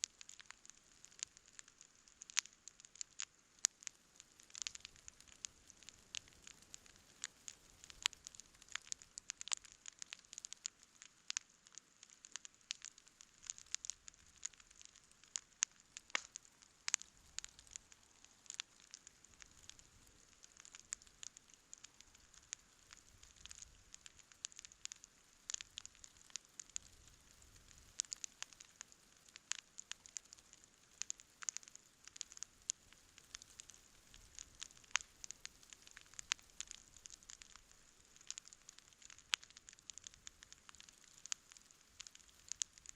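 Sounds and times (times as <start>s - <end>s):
campfire crackling: 0.0s - 42.9s.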